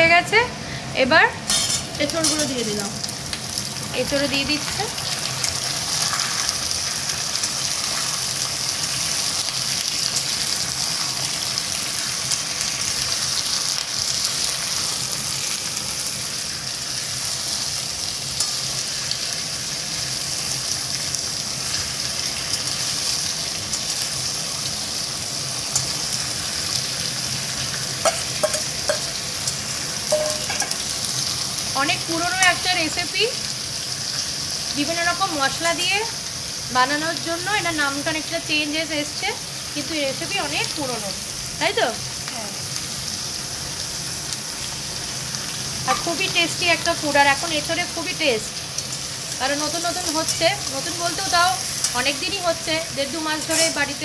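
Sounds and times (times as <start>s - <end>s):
food sizzling in hot oil: 0.0s - 54.0s
metal spatula scraping wok: 1.5s - 2.5s, 53.4s - 53.9s.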